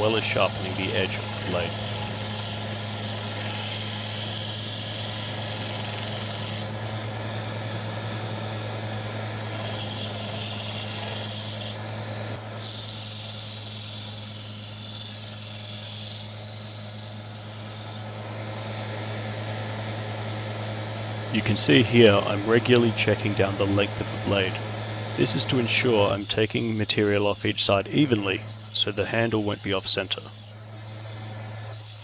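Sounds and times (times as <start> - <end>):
knife blade grinding hiss: 0.0 - 6.7, 9.4 - 11.8, 12.6 - 18.1, 26.0 - 27.8, 28.5 - 30.6, 31.7 - 32.0
electric grinder humming: 0.0 - 32.0.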